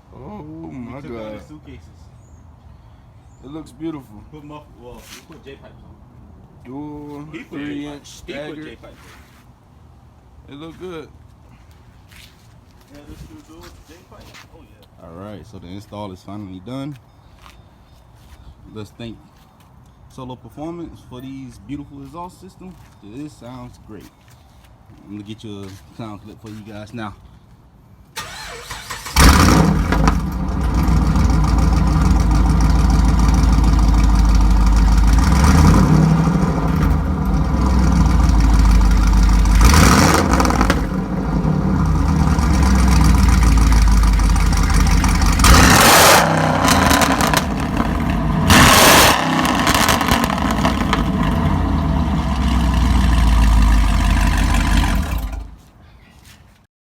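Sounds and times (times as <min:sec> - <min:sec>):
loud car engine revving: 0:28.2 - 0:55.5.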